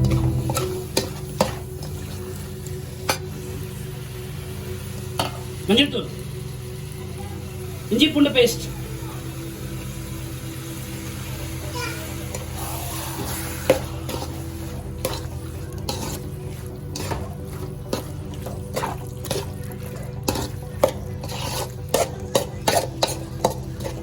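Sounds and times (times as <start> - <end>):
steady low hum: 0.0 - 1.7
spoon scraping a cooking pan: 13.2 - 19.6, 20.2 - 24.0.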